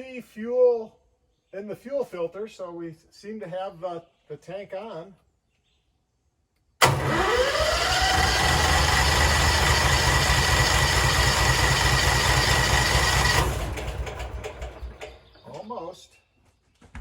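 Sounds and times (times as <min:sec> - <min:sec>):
engine starter cranking: 0:06.8 - 0:15.3.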